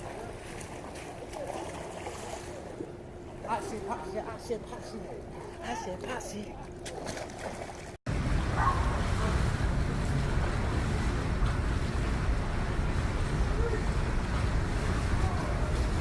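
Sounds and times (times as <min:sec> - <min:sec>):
wind buffeting microphone: 0:08.1 - 0:16.0.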